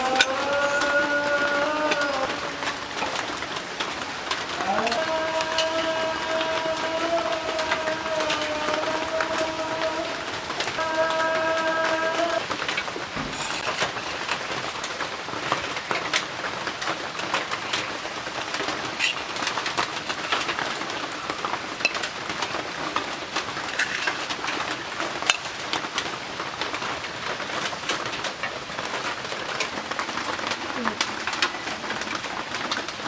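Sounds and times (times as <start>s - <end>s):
heavy rain on a roof: 0.0s - 33.0s
raindrops ticking sharply: 0.0s - 33.0s.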